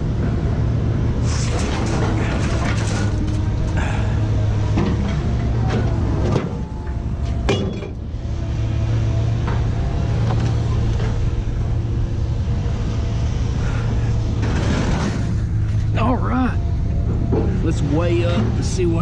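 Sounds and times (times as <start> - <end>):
vehicle engine humming: 0.0 - 19.0
knocks and rattles: 1.3 - 3.8, 4.6 - 8.1, 16.9 - 18.7.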